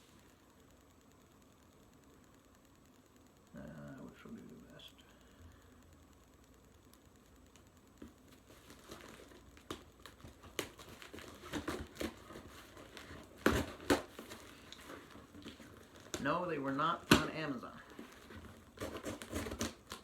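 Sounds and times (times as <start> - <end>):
cardboard box crinkling and rustling: 8.4 - 17.3, 17.9 - 20.0.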